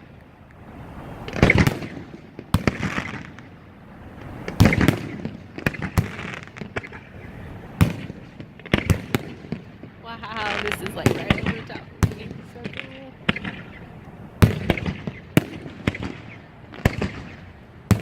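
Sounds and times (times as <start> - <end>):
firework shells bursting: 4.2 - 18.0.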